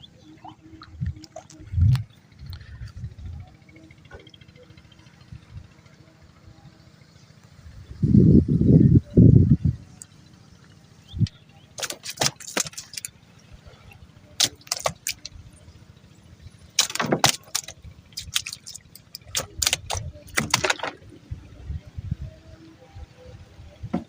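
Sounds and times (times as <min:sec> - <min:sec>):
low background rumble: 0:00.0 - 0:24.0
sharp clattering knocks and rattles: 0:11.8 - 0:15.6, 0:16.4 - 0:21.2.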